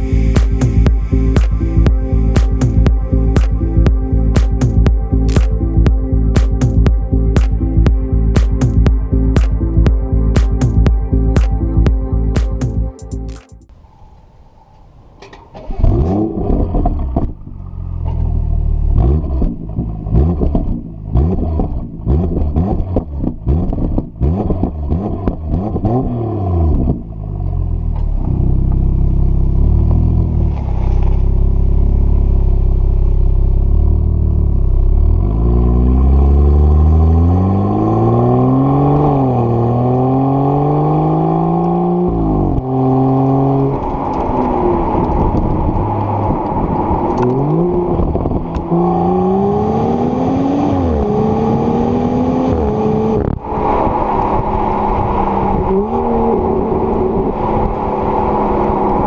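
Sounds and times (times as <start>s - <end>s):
car engine accelerating through gears: 15.6s - 59.0s.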